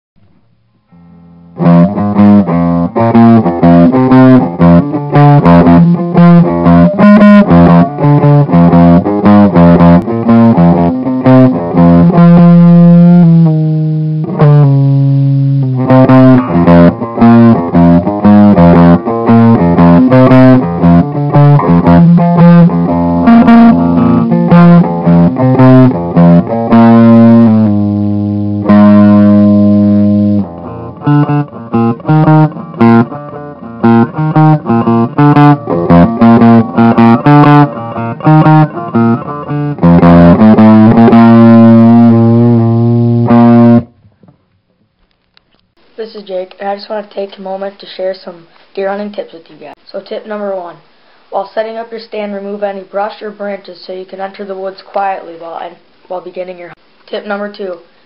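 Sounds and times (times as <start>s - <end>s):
guitar picking with bass line: 0.9s - 44.0s.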